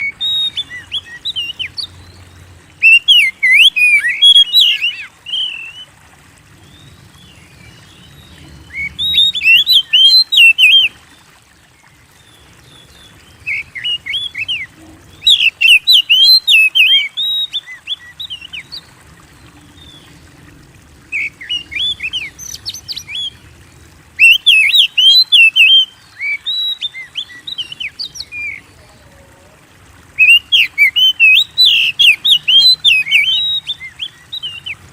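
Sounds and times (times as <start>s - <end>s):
bird singing whistles and chirps: 2.8s - 5.9s, 6.7s - 11.0s, 13.5s - 18.5s, 24.2s - 28.6s, 30.2s - 34.8s.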